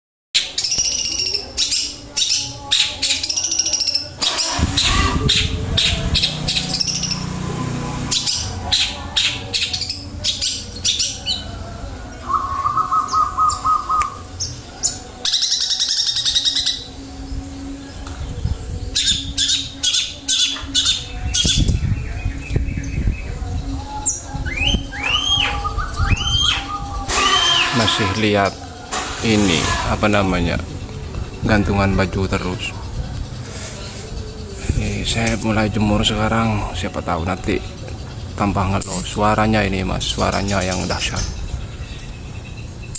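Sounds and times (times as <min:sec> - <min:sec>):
bird trill: 0:00.4 - 0:07.4, 0:08.0 - 0:42.9
bird harsh calls: 0:00.4 - 0:17.0, 0:18.8 - 0:35.4.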